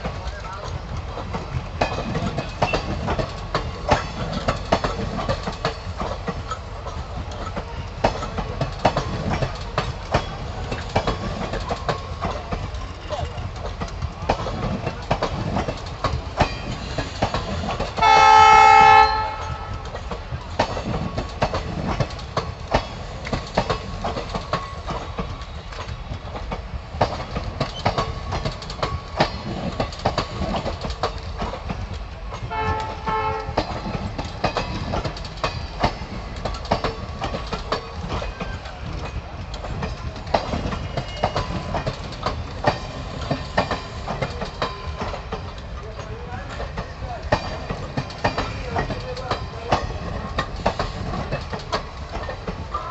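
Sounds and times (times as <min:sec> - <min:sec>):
train wheels clattering on track: 0:00.0 - 0:52.9
locomotive horn: 0:18.0 - 0:19.9, 0:32.5 - 0:33.6.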